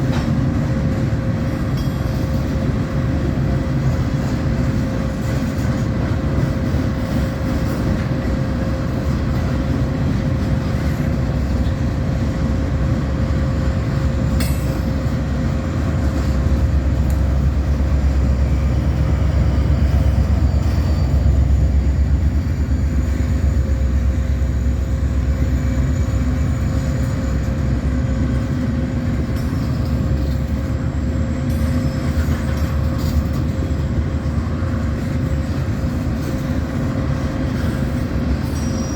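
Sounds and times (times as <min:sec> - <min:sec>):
freight train rumbling past: 0:00.0 - 0:38.9.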